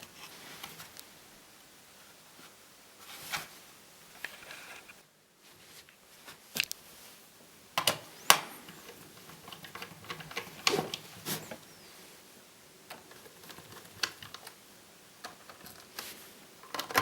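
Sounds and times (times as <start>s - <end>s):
clicks of laptop parts and tools: 7.8s - 11.6s.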